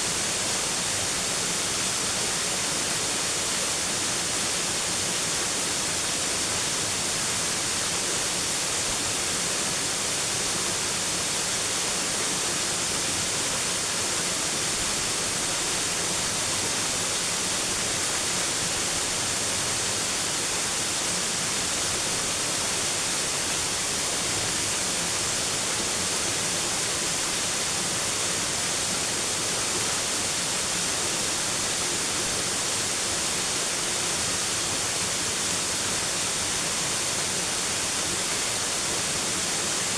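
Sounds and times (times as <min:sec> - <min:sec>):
rushing water hiss: 0:00.0 - 0:39.9.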